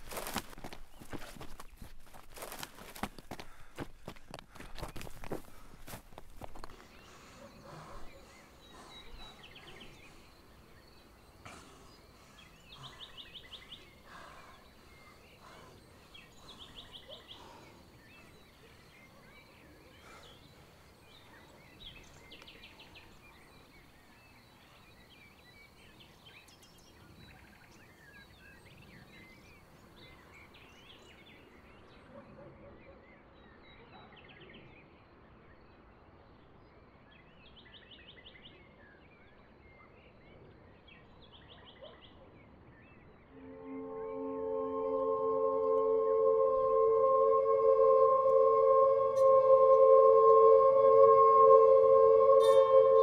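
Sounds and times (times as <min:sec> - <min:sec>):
soft rustles: 0:00.0 - 0:06.9.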